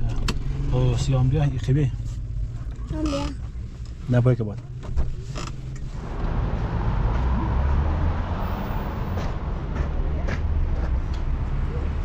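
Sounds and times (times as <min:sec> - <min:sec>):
low rumble: 0:05.7 - 0:12.0.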